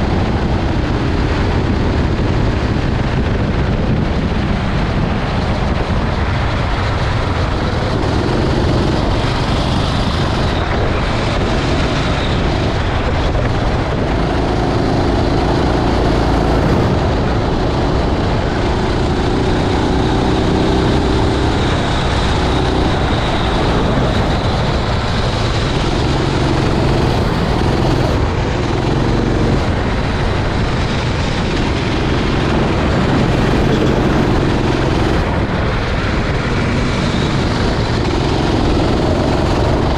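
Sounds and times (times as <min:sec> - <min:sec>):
wind rumble on microphone: 0:00.0 - 0:39.9
kart engine revving: 0:04.8 - 0:39.9.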